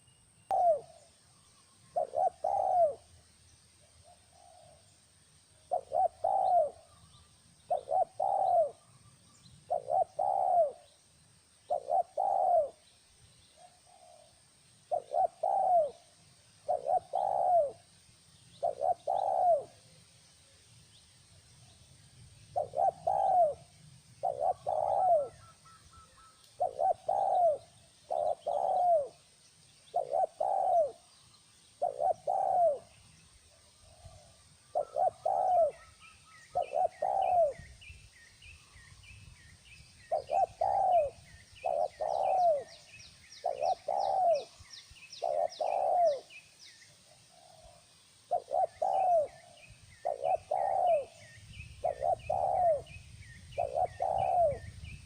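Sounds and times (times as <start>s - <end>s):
doves cooing: 0.0s - 1.1s, 1.9s - 3.1s, 5.7s - 7.1s, 7.7s - 9.0s, 9.7s - 10.9s, 11.7s - 12.8s, 14.9s - 17.9s, 18.6s - 19.9s, 22.5s - 29.2s, 29.9s - 31.1s, 31.8s - 37.7s, 40.1s - 44.6s, 45.2s - 46.3s, 47.1s - 53.0s, 53.6s - 54.8s
small birds chirping: 0.0s - 55.0s.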